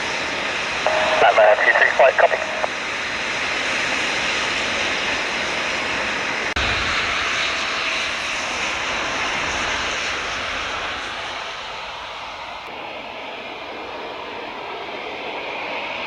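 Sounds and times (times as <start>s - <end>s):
jet fighters taking off: 0.0s - 16.0s.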